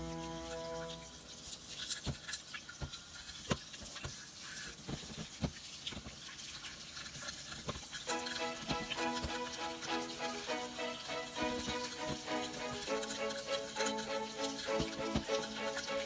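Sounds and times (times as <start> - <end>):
background music: 0.0 - 1.8, 8.1 - 16.0
toothbrush scrubbing fan: 7.0 - 16.0.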